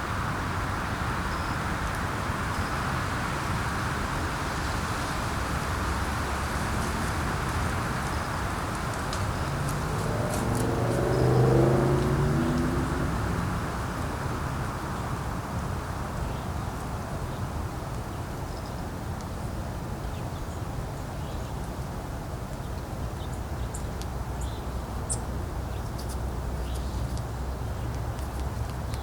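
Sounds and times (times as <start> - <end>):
wind blowing: 0.0 - 17.8
low rumble on microphone: 5.4 - 15.6.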